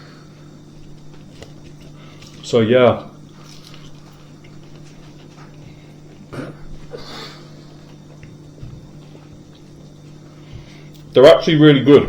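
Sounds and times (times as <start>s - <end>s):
people eating: 0.0s - 11.2s
steady low hum: 0.0s - 12.0s
breathing: 1.9s - 2.3s, 5.6s - 6.0s, 10.2s - 11.0s
breathy puff: 6.4s - 7.7s.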